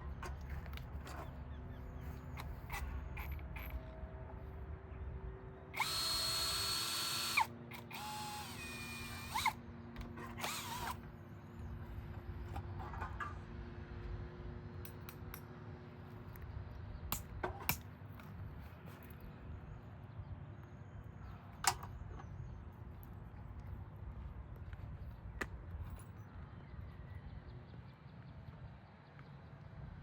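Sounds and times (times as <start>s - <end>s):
power tool whining: 5.8s - 9.6s, 10.2s - 11.0s.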